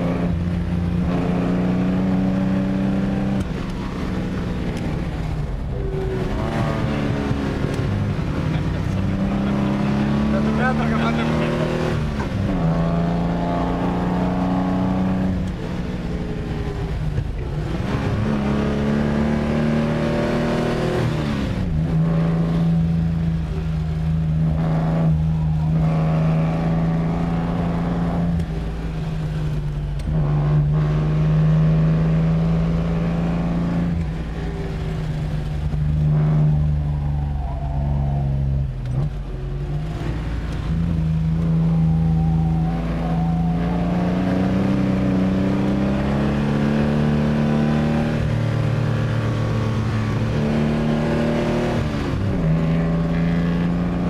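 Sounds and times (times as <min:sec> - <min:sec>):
car engine pulling through gear changes: 0:00.0 - 0:54.0.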